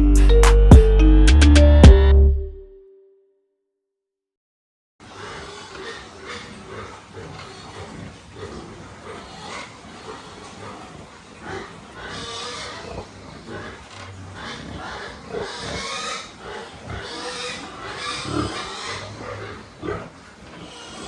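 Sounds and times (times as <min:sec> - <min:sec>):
pigs squealing and grunting: 0:05.0 - 0:21.0.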